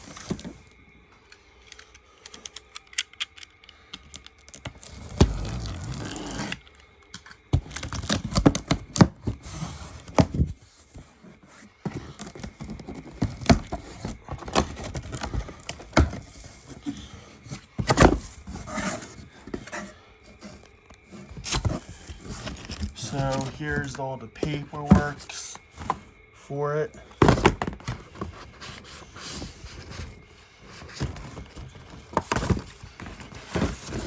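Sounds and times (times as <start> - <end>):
cardboard scraping and rustling: 0.0 - 0.8, 4.7 - 6.6, 7.5 - 26.3, 27.1 - 34.0.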